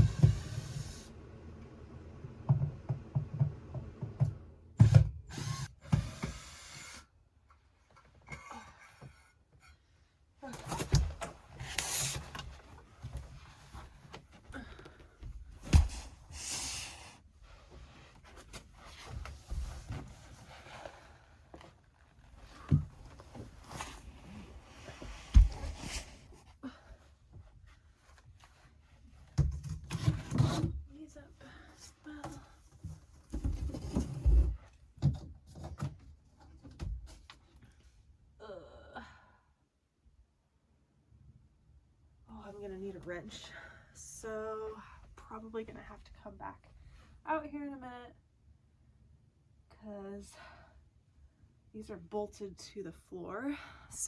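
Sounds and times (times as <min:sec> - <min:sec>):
furniture scraping and handling: 0:00.0 - 0:01.1, 0:17.5 - 0:26.4.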